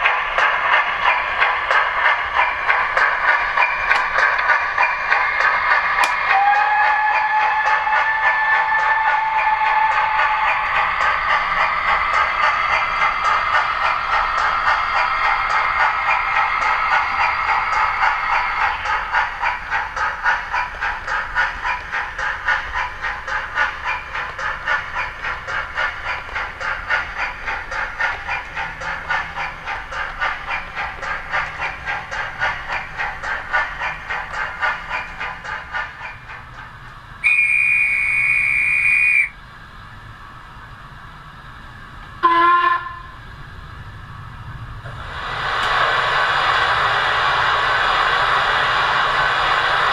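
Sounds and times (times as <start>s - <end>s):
steam hiss: 0.0s - 49.9s
steam locomotive exhaust chuffs: 0.0s - 49.9s
steam whistle: 3.6s - 28.1s, 37.2s - 39.4s, 42.2s - 43.3s, 44.9s - 49.9s.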